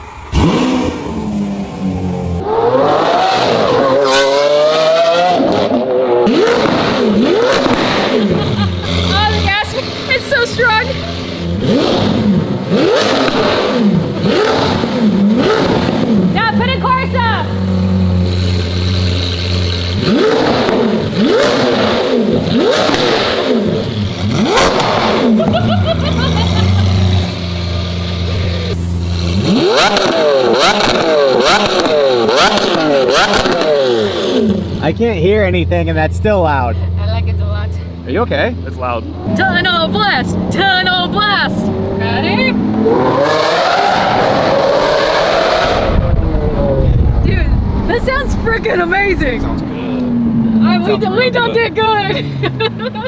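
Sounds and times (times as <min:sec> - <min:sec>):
car engine revving hard: 0:00.0 - 0:53.0.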